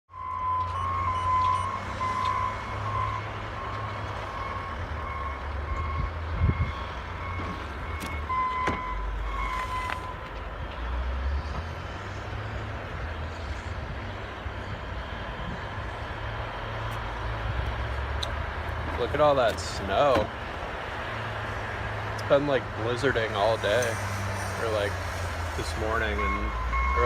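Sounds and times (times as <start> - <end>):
vehicle back-up alarm beeping: 0.1 - 11.1, 25.9 - 27.0
traffic rumble: 0.1 - 27.0.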